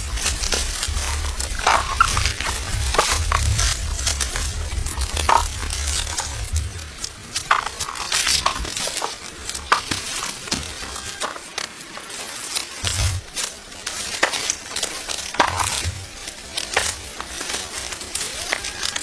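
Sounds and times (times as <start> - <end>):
low rumble: 0.0 - 9.7
corn stalks crackling and rustling: 0.0 - 19.0
stalks snapping: 0.0 - 19.0.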